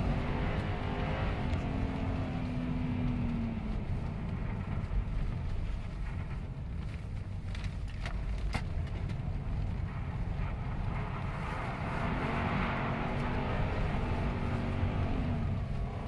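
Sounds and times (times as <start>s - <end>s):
car engine from inside cabin: 0.0s - 16.0s
car rumbling on snowy track: 0.0s - 16.0s.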